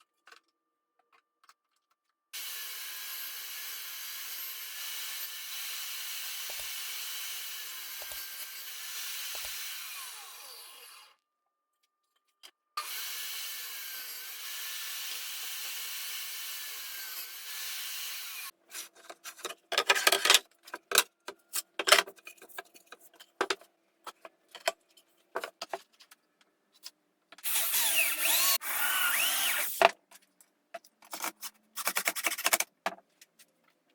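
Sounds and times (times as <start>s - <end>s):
power tool cutting wood: 2.4s - 11.2s, 12.8s - 18.5s, 27.4s - 29.8s.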